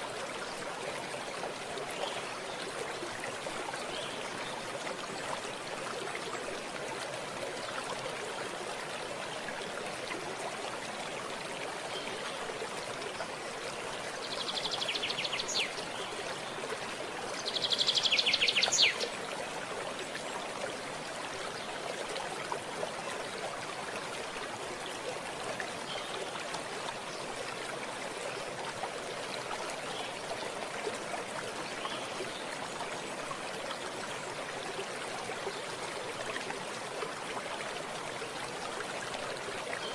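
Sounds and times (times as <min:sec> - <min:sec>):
stream of water running: 0:00.0 - 0:39.9.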